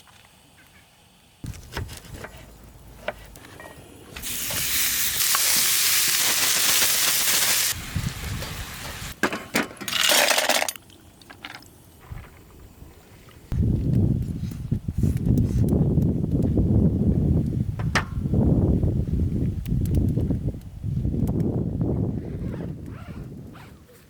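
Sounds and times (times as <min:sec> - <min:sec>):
food sizzling in a frying pan: 0:04.2 - 0:09.2.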